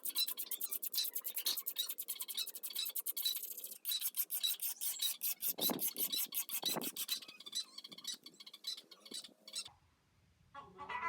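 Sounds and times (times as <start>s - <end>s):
hand sanding strokes: 0.0s - 7.2s.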